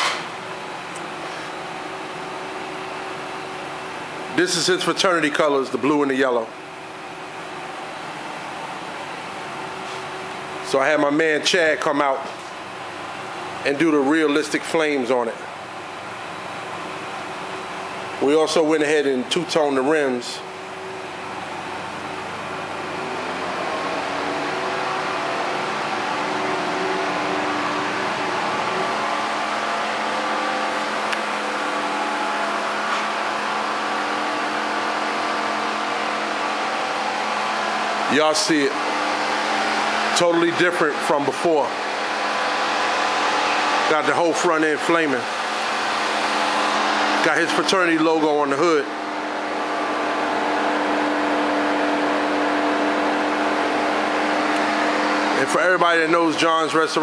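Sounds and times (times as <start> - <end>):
car engine idling: 20.4 - 57.0.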